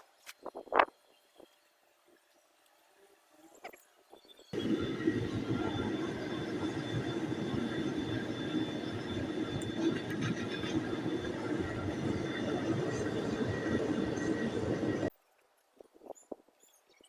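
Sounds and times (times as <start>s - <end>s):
gas burner rushing: 4.6s - 15.1s.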